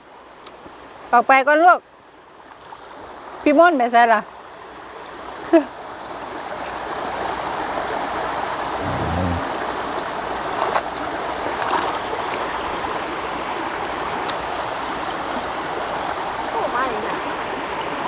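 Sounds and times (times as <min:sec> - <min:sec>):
stream water rushing: 0:01.9 - 0:18.0
short low sound: 0:08.8 - 0:09.6.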